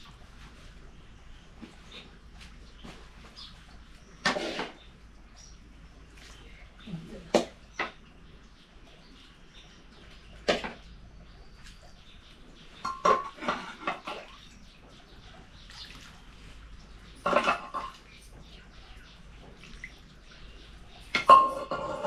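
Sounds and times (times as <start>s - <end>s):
metal dishes clinking: 12.8s - 14.3s, 17.2s - 18.1s, 21.0s - 22.0s.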